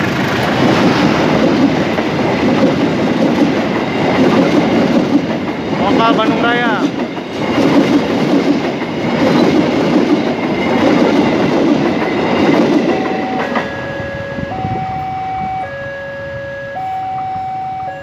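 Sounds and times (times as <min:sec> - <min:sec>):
train rumbling over rails: 0:00.0 - 0:18.0
two-tone crossing alarm: 0:12.8 - 0:18.0.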